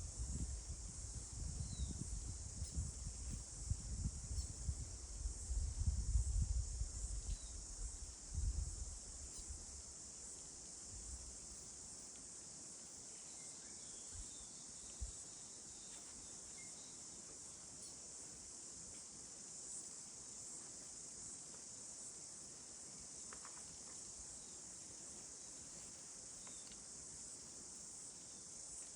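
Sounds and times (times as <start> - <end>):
high-pitched insect drone: 1.2 - 3.5.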